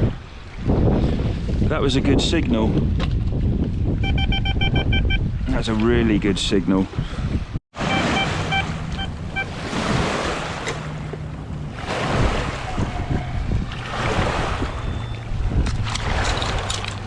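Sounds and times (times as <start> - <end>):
strong wind buffeting microphone: 0.0 - 17.0
metal detector short beeps: 4.0 - 5.2, 7.8 - 9.5, 14.7 - 15.2.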